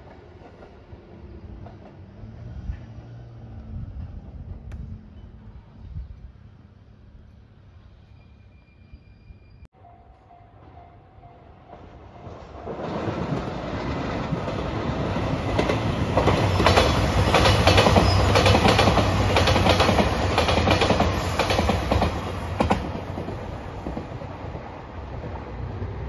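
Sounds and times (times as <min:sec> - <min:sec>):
train wheels clacking: 0:11.7 - 0:24.2.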